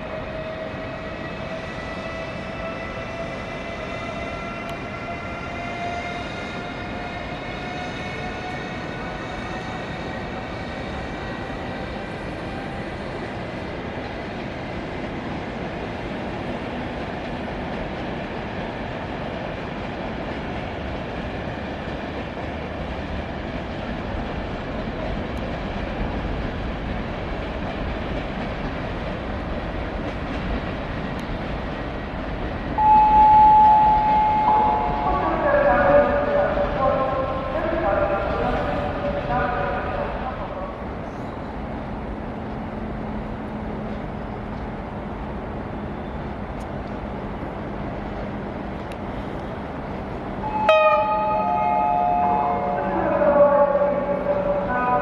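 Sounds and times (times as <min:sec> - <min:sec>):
train rolling rumble: 0:00.0 - 0:55.0
loud chime tone: 0:32.8 - 0:35.2, 0:50.5 - 0:52.9.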